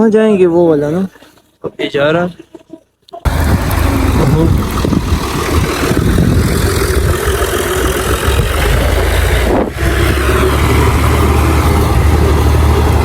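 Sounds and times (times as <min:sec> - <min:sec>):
tractor engine running: 0:03.3 - 0:13.0.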